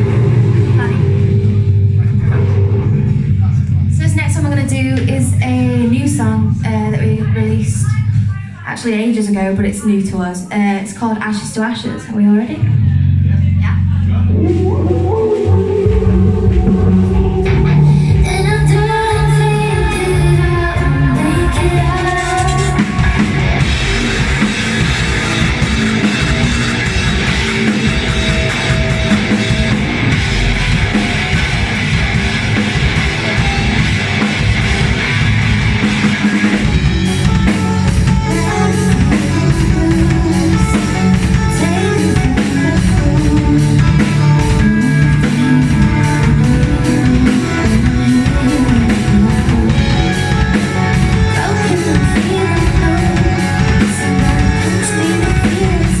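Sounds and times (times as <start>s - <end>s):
live rock band playing: 0.0s - 8.2s, 12.6s - 56.0s
drum beat: 14.4s - 56.0s.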